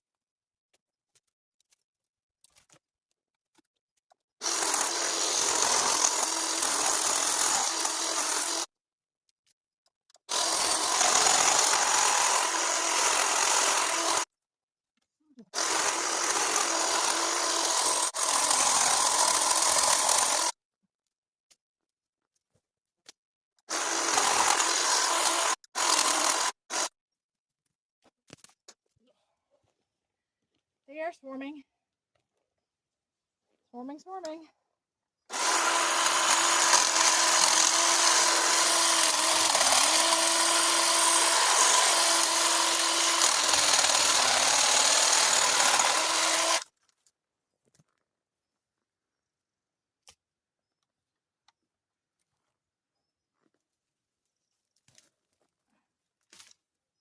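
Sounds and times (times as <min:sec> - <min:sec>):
power cutting tool running: 0:04.4 - 0:08.7, 0:10.3 - 0:14.3, 0:15.6 - 0:20.5, 0:23.7 - 0:26.9, 0:35.3 - 0:46.6.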